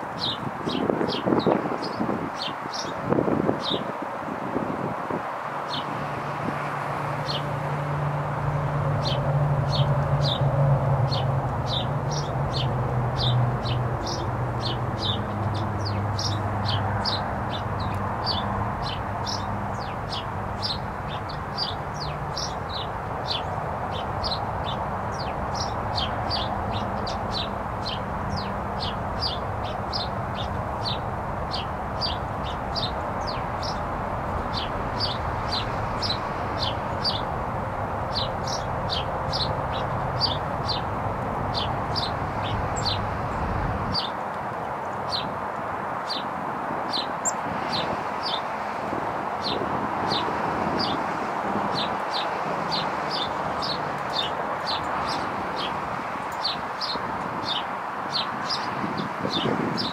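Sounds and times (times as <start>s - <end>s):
songbird chirping: 8.6s - 37.4s, 38.0s - 45.3s.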